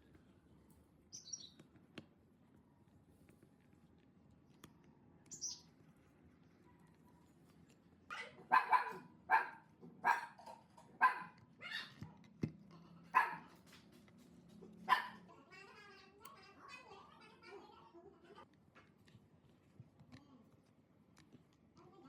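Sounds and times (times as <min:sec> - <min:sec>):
dog barking: 0:08.1 - 0:12.0, 0:13.1 - 0:13.6, 0:14.9 - 0:15.2.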